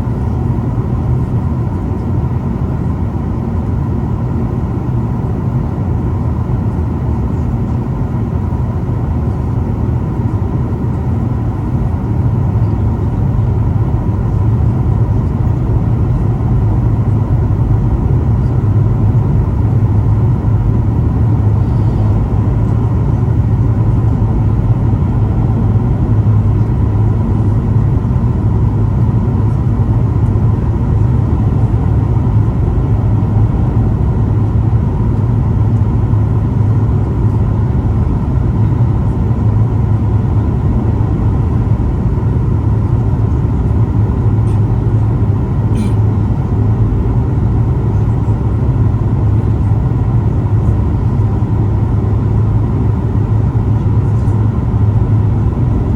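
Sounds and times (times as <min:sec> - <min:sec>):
airplane cabin engine rumble: 0:00.0 - 0:55.9.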